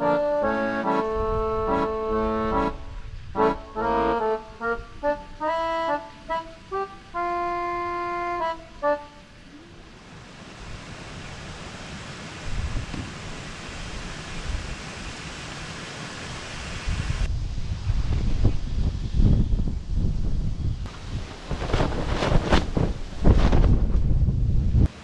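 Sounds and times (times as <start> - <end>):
accordion-like music phrase: 0.0 - 9.7
wind gusts buffeting microphone: 0.9 - 5.6, 12.4 - 15.3, 16.4 - 24.9.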